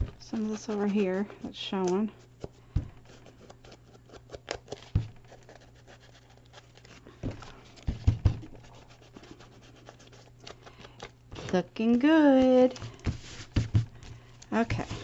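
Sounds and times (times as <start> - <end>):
scratchy paper rubbing: 0.0 - 2.4, 8.5 - 10.6, 11.3 - 13.8.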